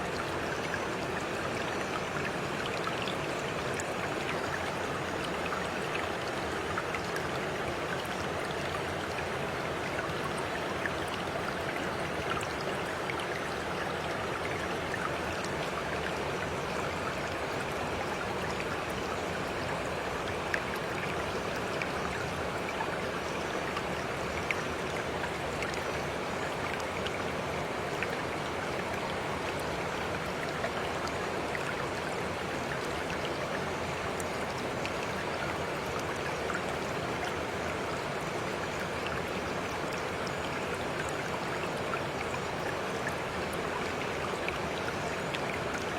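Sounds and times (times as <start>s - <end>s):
stream water rushing: 0.0s - 45.9s.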